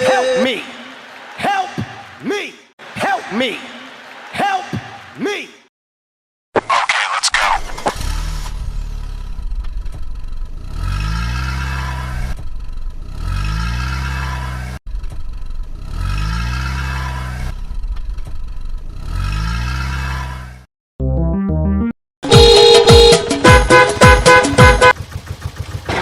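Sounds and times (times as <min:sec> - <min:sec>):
car engine revving: 0:07.4 - 0:20.6.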